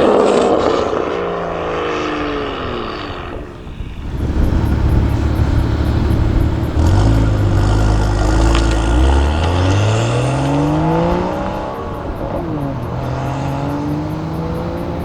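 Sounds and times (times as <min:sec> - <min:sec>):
car passing by: 0:00.0 - 0:15.0
loud low exhaust note: 0:04.0 - 0:15.0.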